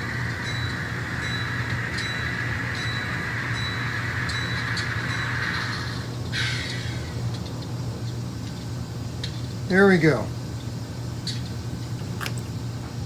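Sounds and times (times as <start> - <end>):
low engine drone: 0.0 - 8.0.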